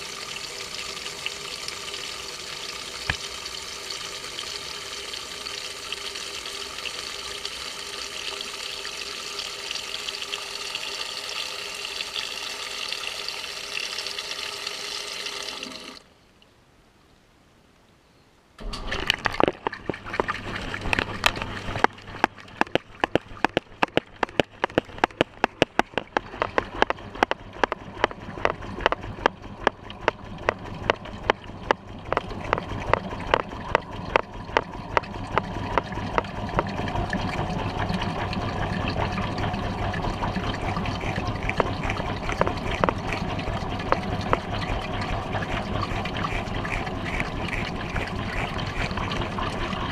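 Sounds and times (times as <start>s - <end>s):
water rushing into washer tub: 0.0s - 16.1s, 18.6s - 49.9s
washing machine motor hum: 18.6s - 49.9s.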